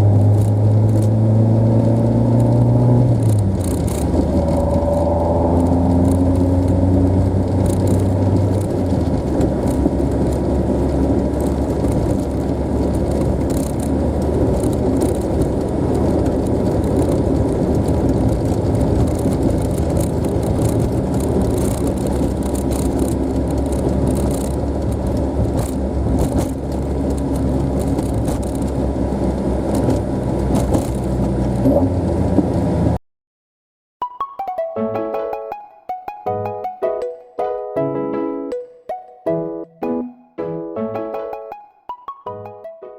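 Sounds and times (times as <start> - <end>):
car engine drone: 0.0 - 33.0
road noise: 0.0 - 33.0.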